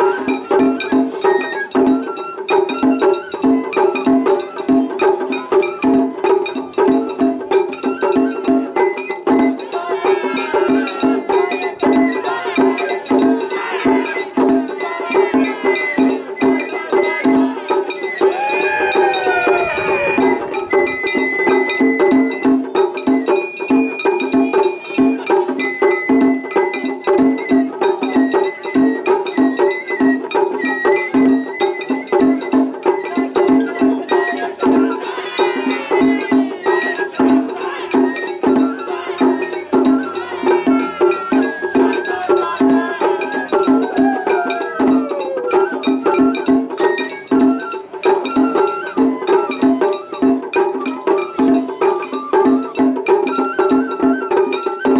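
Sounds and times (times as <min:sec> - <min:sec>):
high bamboo flute: 0:00.0 - 0:54.9
fast drum beat: 0:09.3 - 0:25.6, 0:32.1 - 0:46.9.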